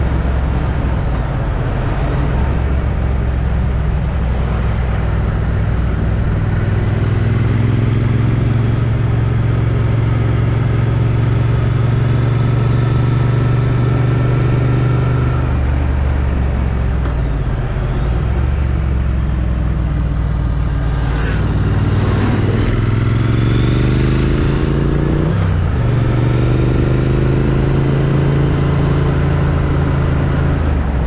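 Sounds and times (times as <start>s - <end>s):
motorcycle engine: 15.5s - 31.0s
wind rushing past helmet: 20.2s - 25.7s.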